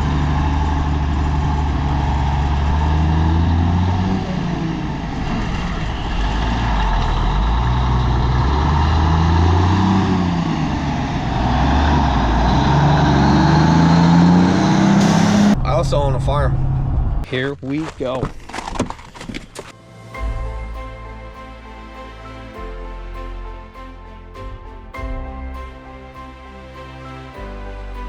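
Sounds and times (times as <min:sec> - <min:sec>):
truck diesel engine running: 0:00.0 - 0:15.6.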